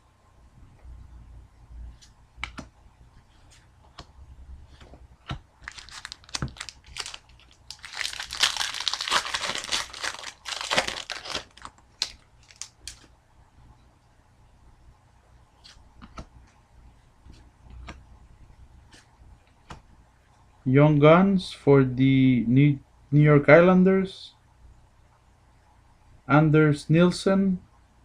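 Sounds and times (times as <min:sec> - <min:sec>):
foil wrapper tearing and crinkling: 0:05.6 - 0:13.1.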